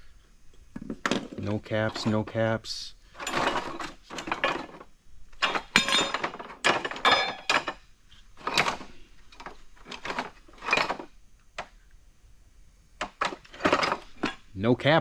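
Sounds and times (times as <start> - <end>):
metal hardware clinking: 3.2 - 11.1, 13.0 - 14.5.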